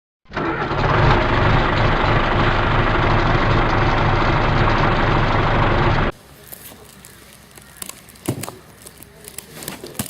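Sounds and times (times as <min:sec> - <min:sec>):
engine idling: 0:00.3 - 0:06.2.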